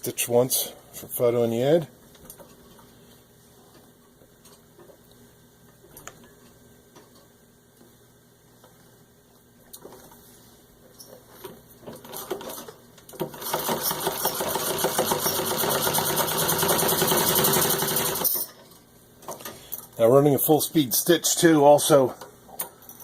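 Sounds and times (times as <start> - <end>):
sewing machine stitching: 12.0 - 18.4.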